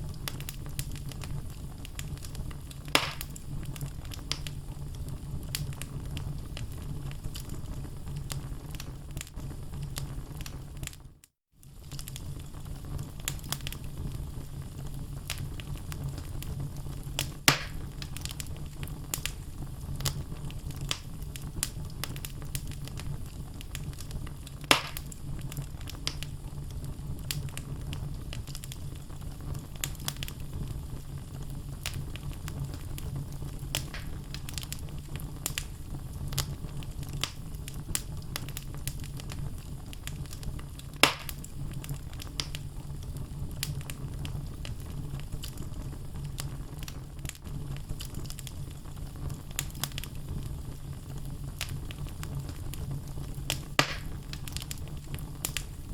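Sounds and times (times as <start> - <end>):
wood fire pops: 0.0 - 11.0, 11.6 - 55.9
low rumble of flame: 0.0 - 55.9
logs crackling: 0.2 - 4.6, 17.1 - 19.4, 21.6 - 26.3, 31.8 - 44.8, 51.6 - 55.8.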